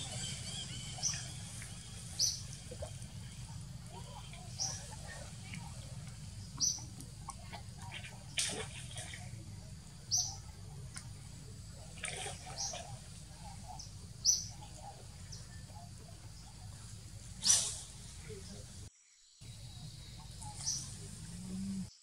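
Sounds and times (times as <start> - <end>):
bird chirping: 0.0 - 7.0, 10.1 - 10.6, 11.9 - 18.7, 19.4 - 22.0
steady low hum: 0.0 - 22.0.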